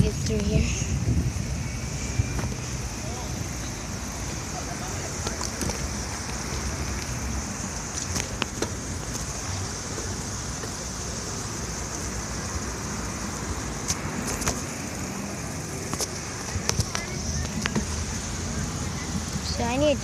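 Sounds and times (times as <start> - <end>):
wind rumble on microphone: 0.0 - 4.5
high hiss: 0.0 - 20.0.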